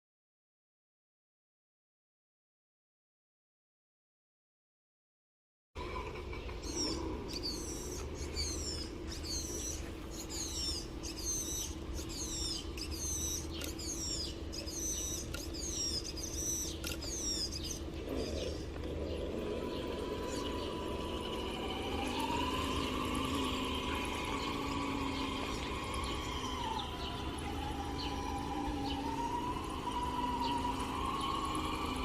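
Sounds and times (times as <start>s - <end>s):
steady low hum: 5.8s - 32.0s
bird chirping: 5.9s - 32.0s.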